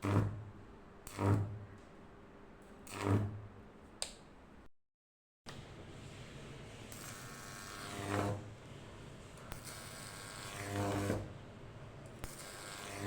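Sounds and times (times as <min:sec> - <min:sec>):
transformers buzzing with mains hum: 0:09.4 - 0:11.4, 0:12.0 - 0:13.0
hissing high-voltage buzz: 0:12.2 - 0:13.0.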